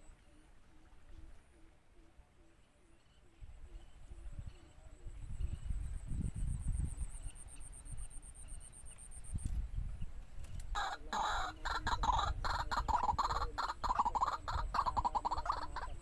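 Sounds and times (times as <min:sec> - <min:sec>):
waterhen calling harsh pulsing notes: 0:10.8 - 0:16.0.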